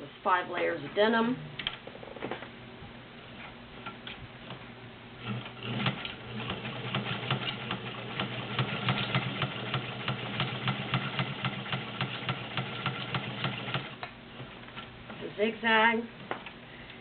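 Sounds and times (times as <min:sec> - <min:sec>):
sewing machine stitching: 0:05.2 - 0:14.0.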